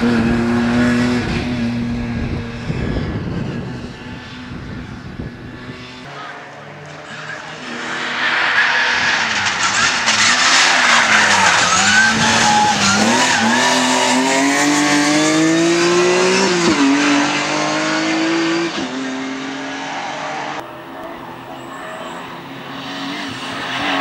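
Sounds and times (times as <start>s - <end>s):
rally car engine accelerating: 0.0s - 24.0s
tyre noise: 7.0s - 19.0s.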